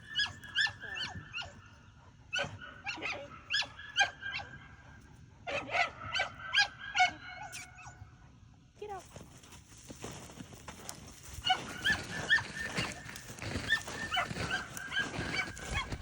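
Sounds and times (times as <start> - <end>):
dog whining and yipping: 0.0 - 1.5, 11.5 - 16.0.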